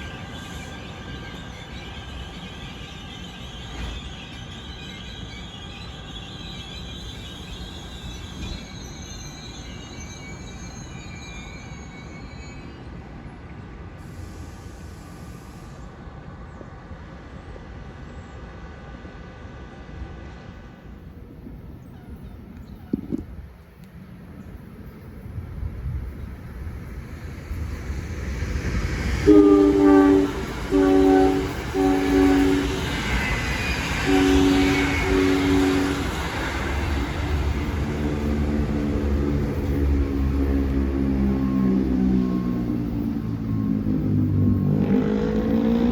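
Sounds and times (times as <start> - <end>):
high wavering wheel squeals: 0.0 - 13.1, 27.2 - 45.9
train wheels rumbling on track: 0.0 - 45.9
train air horn blasts: 29.1 - 37.2.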